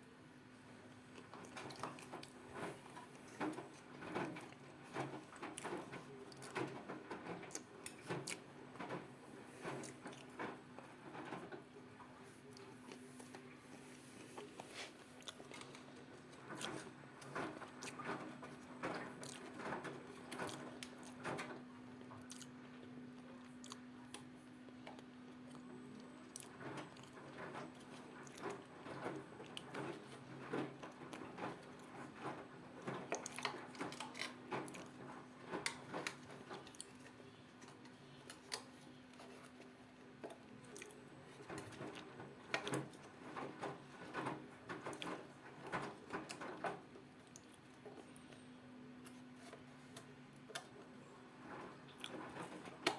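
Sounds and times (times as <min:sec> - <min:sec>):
washing machine hum: 0:00.0 - 0:52.9
washing machine drum sloshing: 0:00.8 - 0:21.6, 0:25.6 - 0:37.1, 0:40.5 - 0:47.0, 0:50.6 - 0:52.9.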